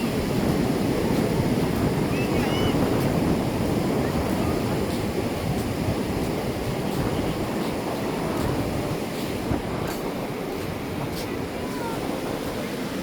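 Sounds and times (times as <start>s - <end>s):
ocean waves on beach: 0.0s - 13.0s
wind buffeting microphone: 0.0s - 13.0s.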